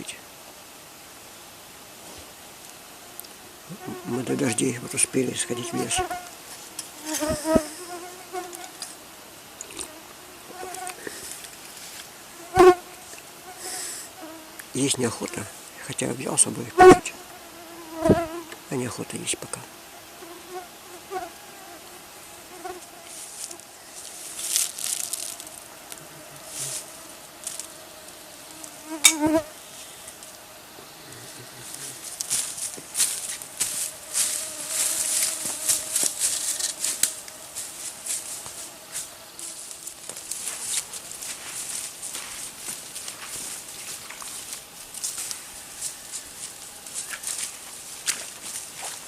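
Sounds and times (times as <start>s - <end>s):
flying insects buzzing: 0.0s - 49.0s
soft rustles: 10.7s - 12.2s, 22.7s - 28.8s, 31.6s - 49.0s.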